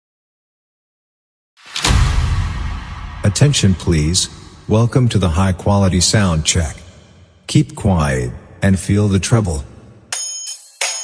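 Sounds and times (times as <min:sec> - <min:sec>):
bright swoosh: 0:01.6 - 0:05.7
heavy bass boom: 0:01.6 - 0:07.4.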